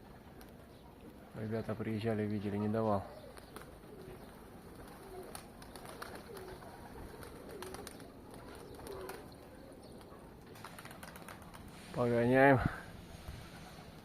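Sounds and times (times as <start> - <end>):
pigeons cooing: 2.4 - 11.9.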